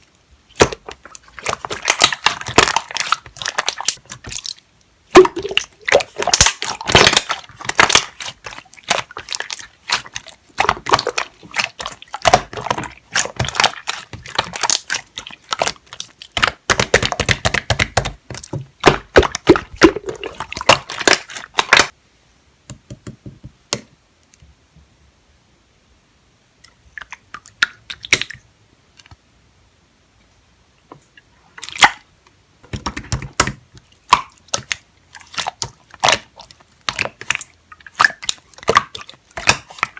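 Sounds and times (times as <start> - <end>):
slime squished by hand: 0.5 - 21.9.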